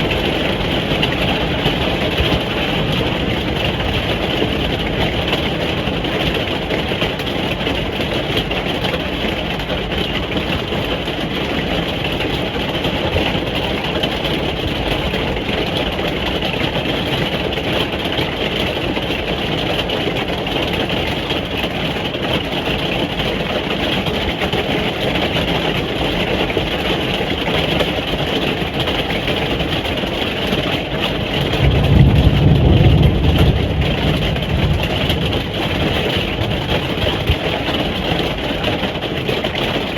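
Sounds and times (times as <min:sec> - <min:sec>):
rain drumming on a caravan roof: 0:00.0 - 0:39.9
deep low rumble: 0:31.6 - 0:37.6.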